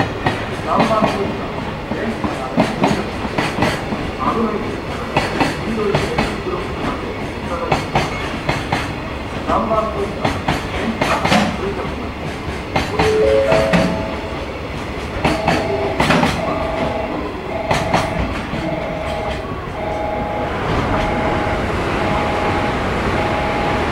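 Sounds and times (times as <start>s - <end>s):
train wheels clicking over joints: 0.0s - 19.8s
two-note tone: 13.0s - 14.6s, 15.3s - 23.8s.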